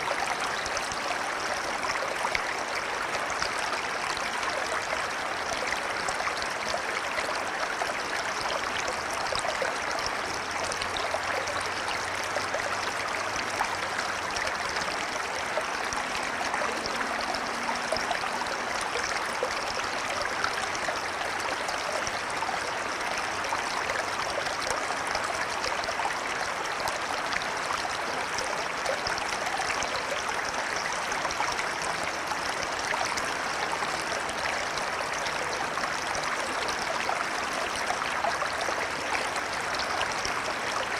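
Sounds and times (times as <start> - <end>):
river water rushing: 10.0 - 25.6.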